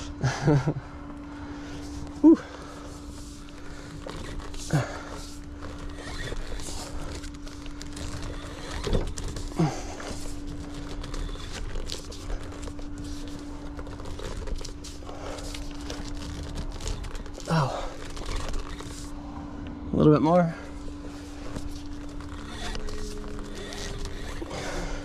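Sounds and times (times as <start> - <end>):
steady hum and low rumble: 0.0 - 25.0
man breathing hard: 24.3 - 25.0.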